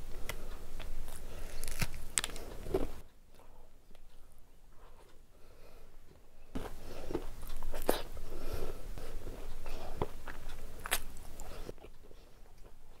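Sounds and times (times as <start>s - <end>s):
crunching snacks: 1.1s - 2.9s
person chewing wetly: 6.6s - 8.2s, 9.0s - 12.7s.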